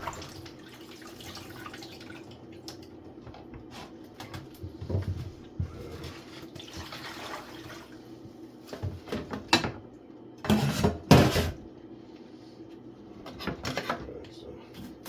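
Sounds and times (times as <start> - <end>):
water splashes: 0.0 - 2.9, 6.6 - 8.0.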